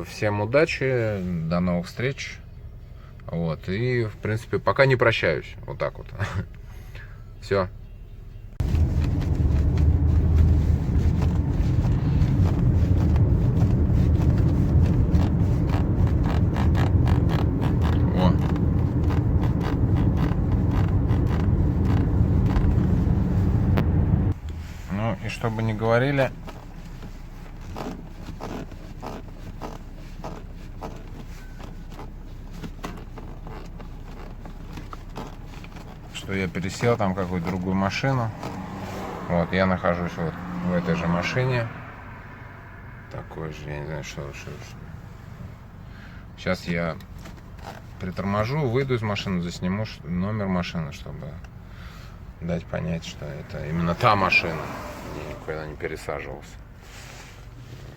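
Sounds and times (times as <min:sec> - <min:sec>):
road and engine rumble: 0:00.0 - 0:57.9.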